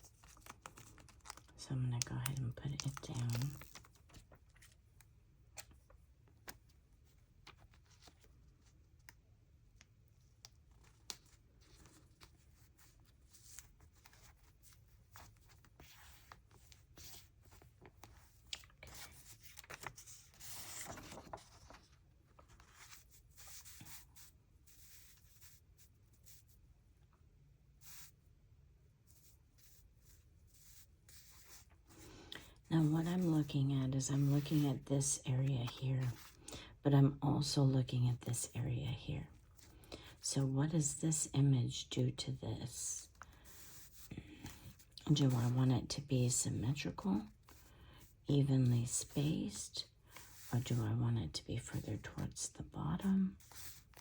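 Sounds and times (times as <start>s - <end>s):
paper rustling: 0.0s - 1.5s, 2.2s - 9.2s, 9.8s - 26.5s, 29.2s - 34.9s, 35.6s - 36.5s, 43.0s - 45.6s, 53.3s - 54.0s.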